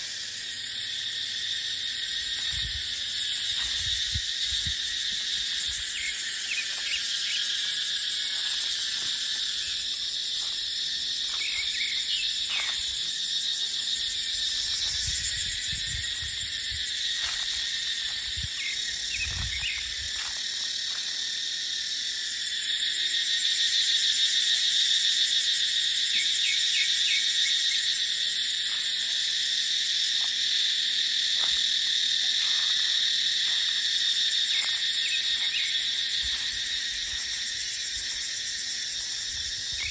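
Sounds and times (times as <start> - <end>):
cicadas buzzing: 0.0 - 39.9
low gusts of wind: 14.8 - 17.0.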